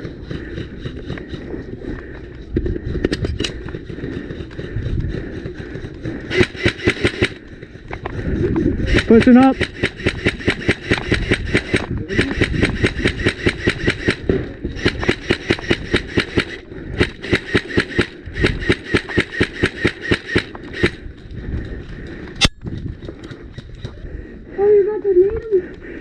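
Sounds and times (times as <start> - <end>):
airsoft rifle full-auto bursts: 6.3 - 7.4, 8.9 - 21.0.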